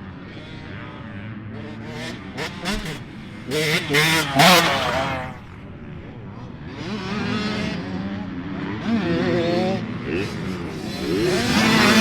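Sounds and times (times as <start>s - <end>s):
dirt bike engine revving: 1.6s - 5.6s, 6.7s - 12.0s.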